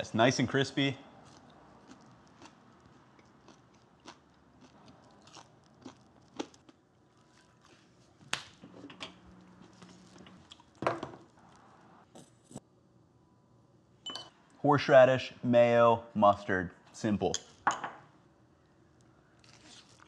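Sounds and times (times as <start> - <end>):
person chewing crispy food: 1.2 - 8.2, 9.6 - 10.8, 19.4 - 20.0.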